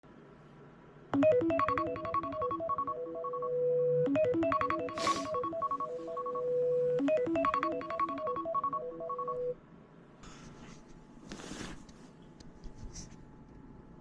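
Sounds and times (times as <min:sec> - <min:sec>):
electronic chime melody: 0:01.2 - 0:09.6.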